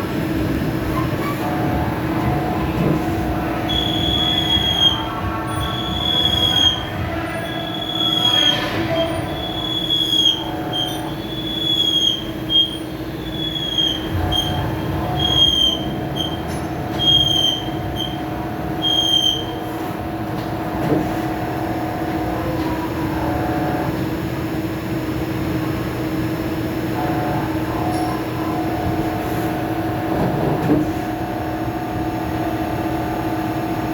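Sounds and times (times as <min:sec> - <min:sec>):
steady machine hum: 0:00.0 - 0:33.9
lathe tool squealing: 0:00.9 - 0:19.6.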